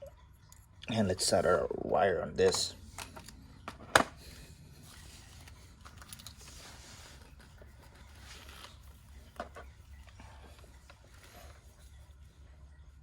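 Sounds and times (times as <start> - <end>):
tools and wire clicking and rustling: 2.4 - 4.0, 4.8 - 12.0.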